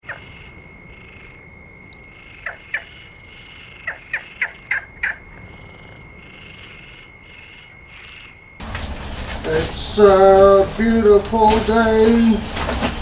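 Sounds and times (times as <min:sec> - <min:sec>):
fast high trill: 0:01.9 - 0:04.1.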